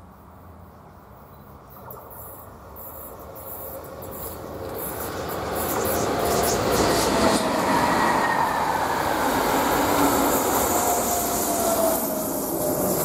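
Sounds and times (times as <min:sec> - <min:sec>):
train wheels rushing on rails: 0:02.2 - 0:13.0.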